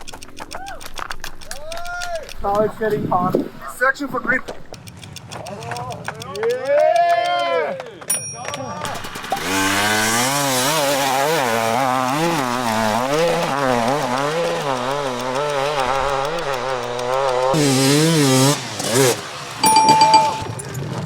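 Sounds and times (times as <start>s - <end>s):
motorcycle engine revving: 8.9s - 19.6s.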